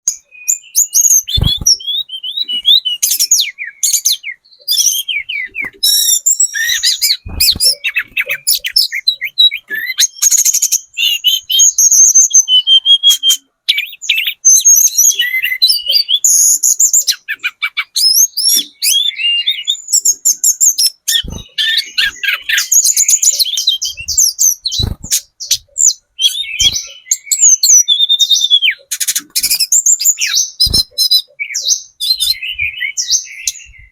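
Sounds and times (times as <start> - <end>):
bird chirping and trilling: 0.0 - 33.9.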